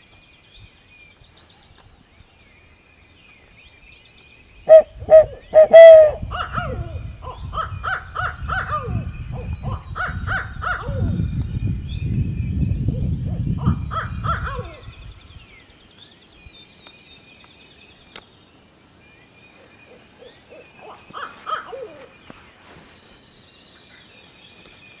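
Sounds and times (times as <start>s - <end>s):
songbirds chirping faintly: 0.0s - 25.0s
owl call hoots: 4.7s - 7.0s.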